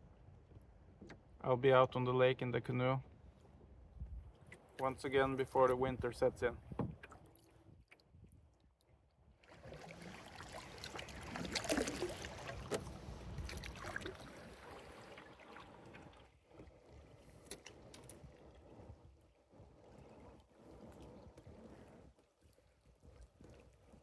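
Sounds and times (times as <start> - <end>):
water splashing around canoe: 6.6 - 24.0
paddle knocking on hull: 6.7 - 7.2.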